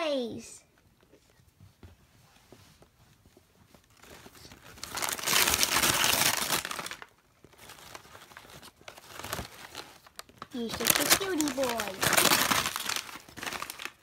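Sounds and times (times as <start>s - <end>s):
wrapping paper crinkling: 3.8s - 14.0s.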